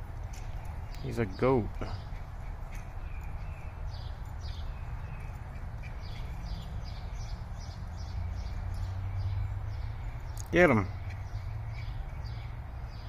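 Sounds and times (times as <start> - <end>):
low outdoor hum: 0.0 - 13.0
small bird chirping: 0.0 - 13.0.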